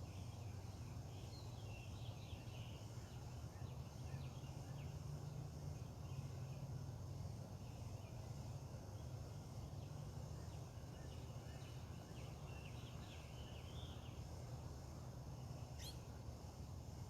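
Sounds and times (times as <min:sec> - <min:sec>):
bird chirping: 0:10.4 - 0:14.3, 0:15.5 - 0:16.1.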